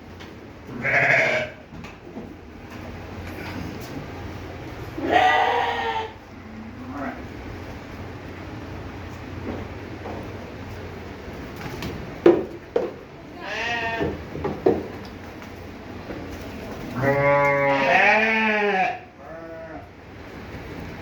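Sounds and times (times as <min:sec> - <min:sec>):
sheep bleating: 0:00.8 - 0:01.6, 0:05.0 - 0:06.2, 0:13.4 - 0:14.2, 0:17.0 - 0:19.9.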